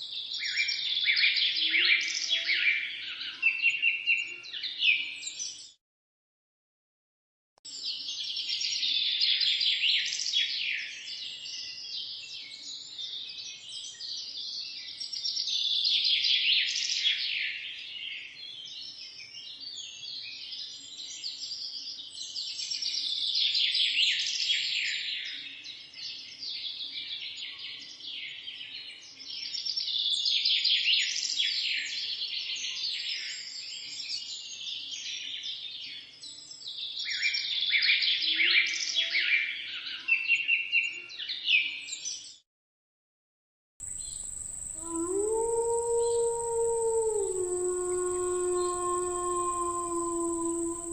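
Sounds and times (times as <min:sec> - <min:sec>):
birds chirping and singing: 0:43.8 - 0:50.9.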